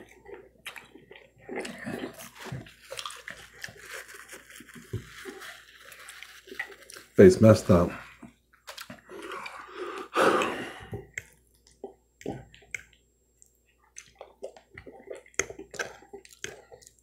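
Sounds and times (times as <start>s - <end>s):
man chewing: 0.0s - 7.2s, 8.1s - 17.0s
loud breaths: 9.1s - 11.1s.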